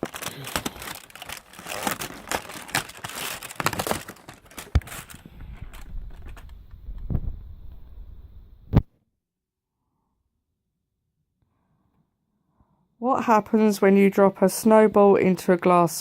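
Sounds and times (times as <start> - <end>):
packaging crinkling and tearing: 0.0 - 7.3.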